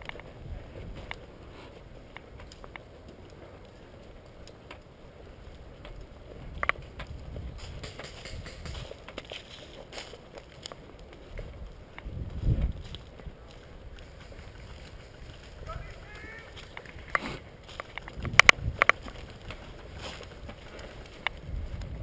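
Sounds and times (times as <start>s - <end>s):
footsteps: 0.0s - 22.0s
sharp metallic click: 7.8s - 8.8s.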